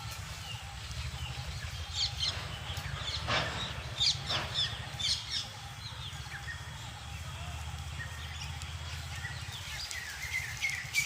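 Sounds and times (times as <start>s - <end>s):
birds chirping: 0.0s - 11.0s
harsh bird calls: 0.0s - 11.0s
low steady rumble: 0.0s - 11.0s.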